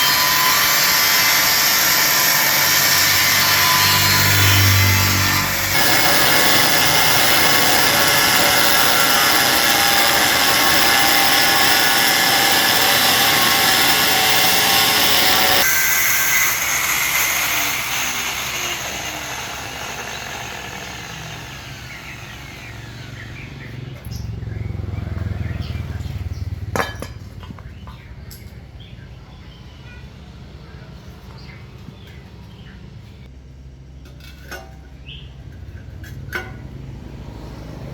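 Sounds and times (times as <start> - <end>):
electric power tool running: 0.0 - 23.8.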